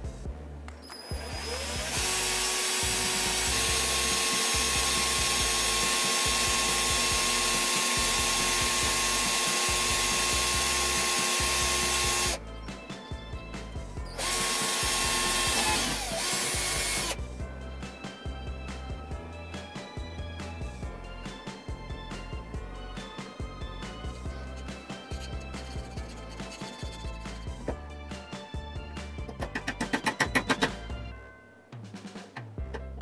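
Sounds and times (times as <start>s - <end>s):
electric drill boring through steel: 1.0s - 12.4s, 14.1s - 17.2s.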